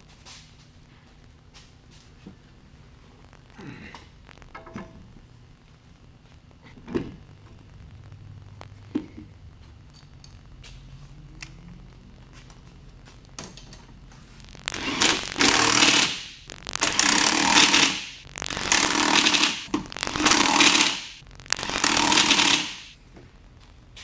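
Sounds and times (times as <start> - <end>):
pneumatic impact wrench bursts: 14.8 - 16.3, 20.2 - 21.1, 21.7 - 22.9.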